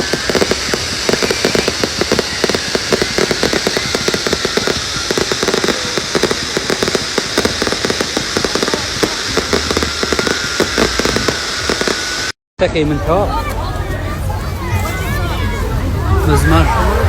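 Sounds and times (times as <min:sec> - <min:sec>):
fireworks crackling and popping: 0:00.0 - 0:12.4.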